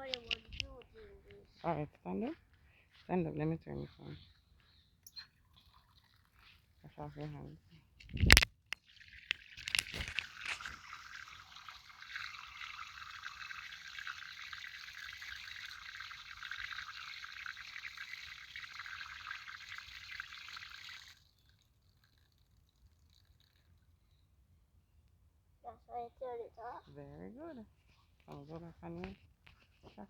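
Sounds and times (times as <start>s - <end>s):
tap water splashing on hands: 8.2s - 21.3s.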